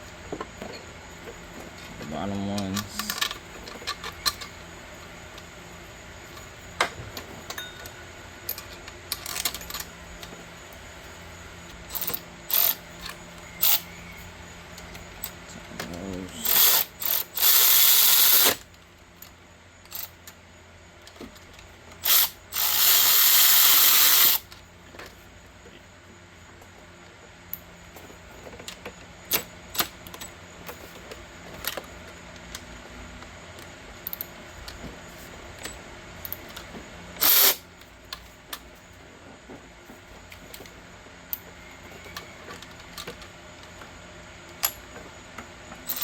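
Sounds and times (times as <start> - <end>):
tools clicking and clanking: 1.7 - 4.6, 6.4 - 10.3, 14.8 - 18.6, 45.8 - 46.0
power tool whirring: 16.4 - 18.6, 22.0 - 24.5, 37.2 - 37.6.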